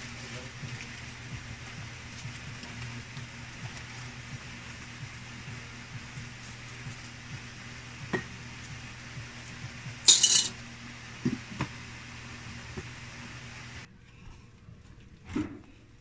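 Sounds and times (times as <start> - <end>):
low steady hum: 0.0 - 16.0
coins clinking in glass jar: 10.1 - 10.5.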